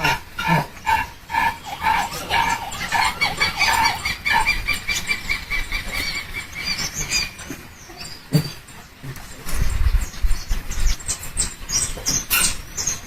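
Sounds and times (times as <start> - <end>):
animals squealing: 0.0 - 8.6.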